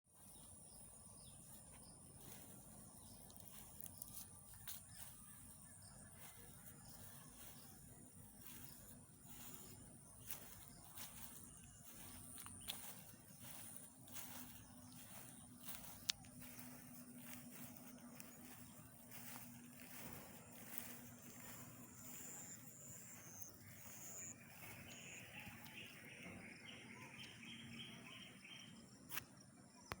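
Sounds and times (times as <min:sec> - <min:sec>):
faint chirps: 0:00.1 - 0:30.0
high-pitched insect drone: 0:06.2 - 0:25.7.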